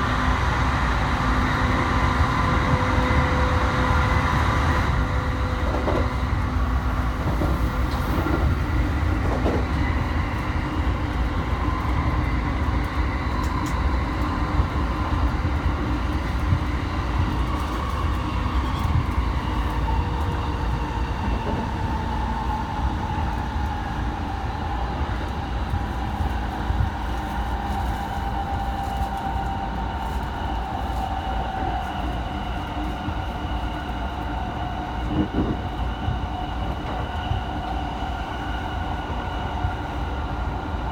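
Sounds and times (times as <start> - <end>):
train wheels rumbling on rails: 0.0 - 40.9
rail joint clicks: 5.4 - 6.6, 7.2 - 14.3.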